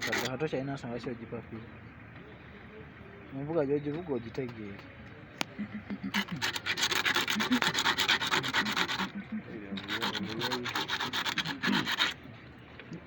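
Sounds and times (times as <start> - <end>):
hand scraping hard surface: 6.1 - 12.2.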